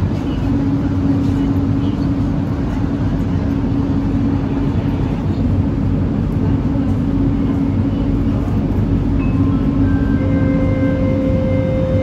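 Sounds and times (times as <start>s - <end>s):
train car interior drone: 0.0s - 12.0s
held low tone: 8.0s - 12.0s.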